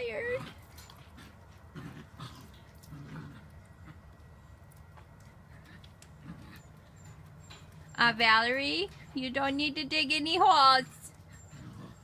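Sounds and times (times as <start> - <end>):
puppy noises: 0.0 - 8.0, 10.6 - 12.0.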